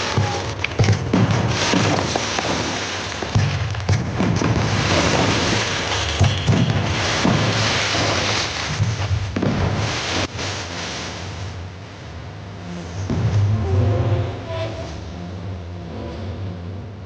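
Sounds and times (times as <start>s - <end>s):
deep firework booms: 0.0s - 11.3s, 13.0s - 14.4s
dense firework crackling: 0.0s - 15.2s.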